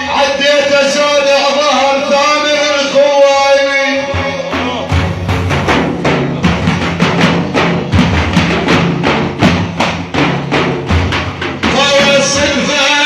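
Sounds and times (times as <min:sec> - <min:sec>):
frame drums beating: 0:04.0 - 0:13.0.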